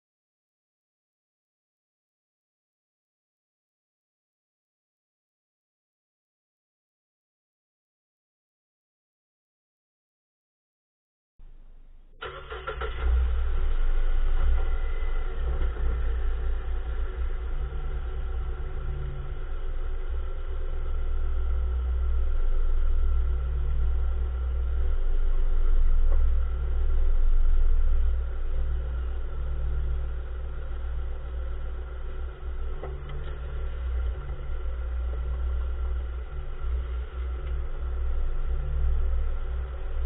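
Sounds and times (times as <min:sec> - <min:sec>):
car engine rumble: 0:11.4 - 0:40.0.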